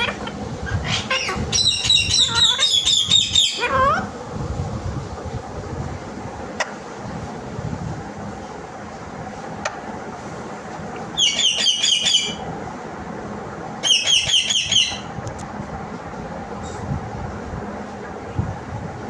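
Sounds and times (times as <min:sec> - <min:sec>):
parakeet screeching: 0:00.0 - 0:04.1, 0:11.2 - 0:12.5, 0:13.8 - 0:15.1
steady background noise: 0:00.0 - 0:19.0.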